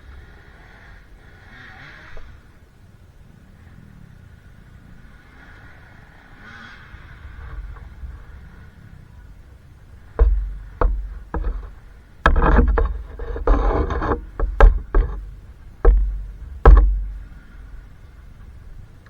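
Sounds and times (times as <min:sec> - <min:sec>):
rough rustling noise: 0:10.1 - 0:18.4
sharp knocks and heavy thumps: 0:10.2 - 0:17.9.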